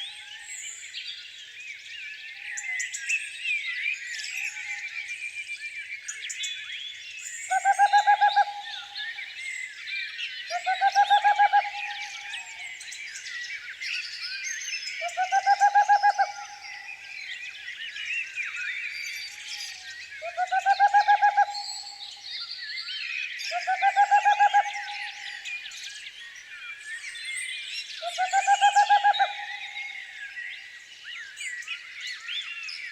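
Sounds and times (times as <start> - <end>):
songbirds chirping and singing: 0.0 - 32.9
low pulsed trilling bird call: 7.5 - 9.3, 10.5 - 12.8, 15.0 - 17.1, 20.2 - 22.2, 23.5 - 25.4, 28.0 - 30.0.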